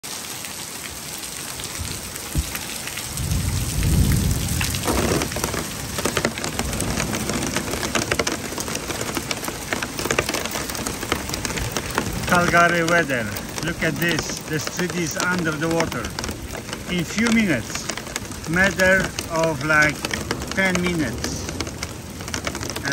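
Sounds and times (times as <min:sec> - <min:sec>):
heavy rain and hail pelting: 0:00.0 - 0:22.9
low rumble: 0:03.2 - 0:07.9.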